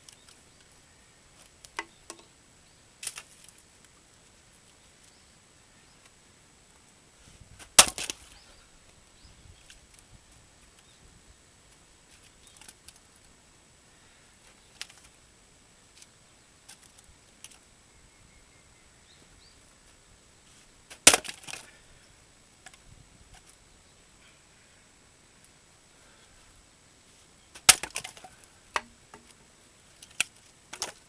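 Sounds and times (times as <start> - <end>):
axe striking firewood: 7.6 - 8.2, 20.9 - 21.6, 27.6 - 29.0
wood splitting crackle: 7.6 - 8.3, 20.9 - 21.8, 27.5 - 29.3, 30.0 - 31.0.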